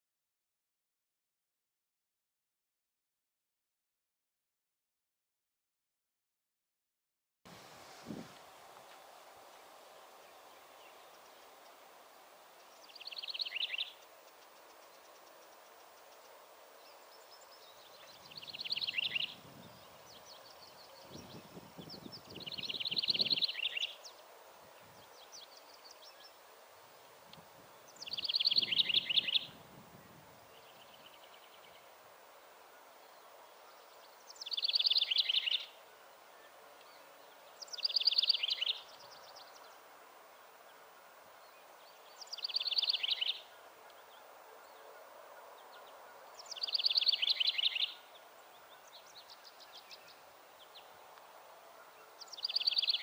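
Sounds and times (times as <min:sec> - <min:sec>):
outdoor background hiss: 0:07.5 - 0:53.0
songbird trilling: 0:12.8 - 0:14.0, 0:18.0 - 0:24.1, 0:27.9 - 0:29.6, 0:34.4 - 0:35.7, 0:37.6 - 0:39.6, 0:42.2 - 0:43.5, 0:45.7 - 0:48.1, 0:52.2 - 0:53.0.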